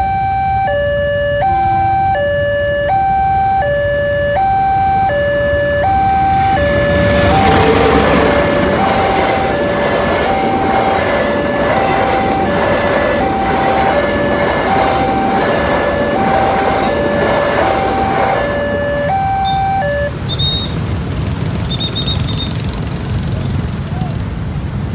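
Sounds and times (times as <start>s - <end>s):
two-tone crossing alarm: 0.0s - 22.8s
passing train rumble: 0.7s - 24.9s.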